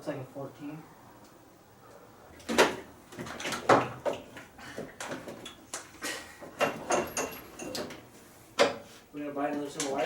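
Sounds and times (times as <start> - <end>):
hand tools clanking on metal: 5.0 - 8.0.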